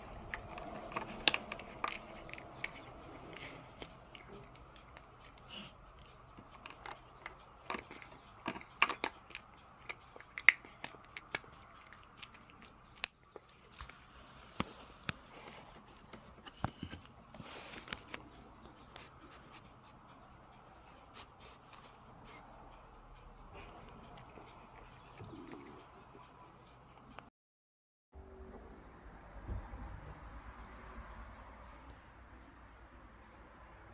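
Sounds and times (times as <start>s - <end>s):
cat crunching dry food: 0.0s - 14.0s, 24.0s - 25.8s.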